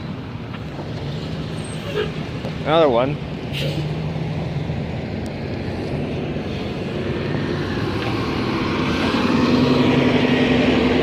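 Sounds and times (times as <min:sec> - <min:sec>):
heavy vehicle engine droning: 0:00.0 - 0:11.0
road traffic: 0:00.0 - 0:11.0.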